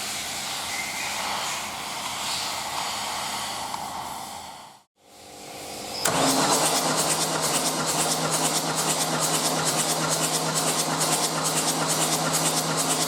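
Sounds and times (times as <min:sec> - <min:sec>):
diesel engine starting and idling: 0:06.0 - 0:13.0.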